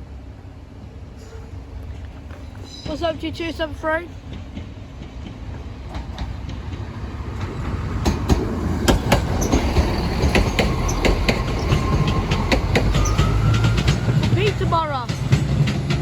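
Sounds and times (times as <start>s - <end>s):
train wheels clicking over rail joints: 0.8s - 16.0s
thin wheel squeal: 9.4s - 14.1s.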